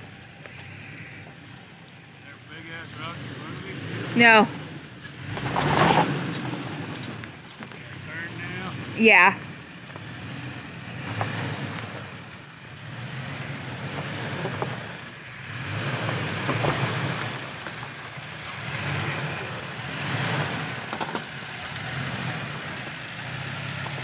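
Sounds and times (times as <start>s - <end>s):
pickup engine running low: 0.0s - 24.0s
tyres crunching on stones: 5.0s - 9.0s.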